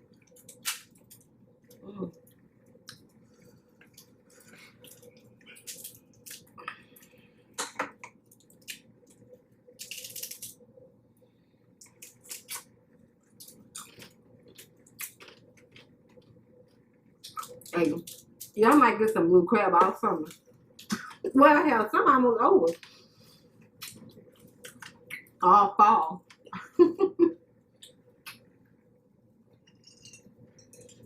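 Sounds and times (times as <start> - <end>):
wet squishing and chewing: 0.0 - 10.6, 11.8 - 18.6, 22.7 - 25.4.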